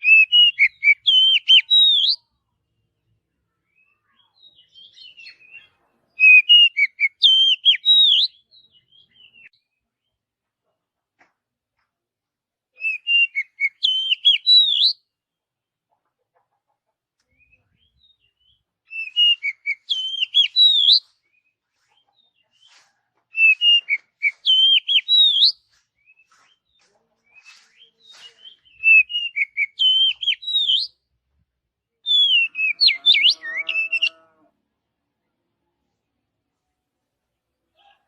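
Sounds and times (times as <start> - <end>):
magpie-robin singing: 0.0 - 2.3, 3.7 - 9.6, 12.8 - 15.0, 17.3 - 31.0, 32.0 - 34.2
lower-pitched bird call: 32.1 - 34.5.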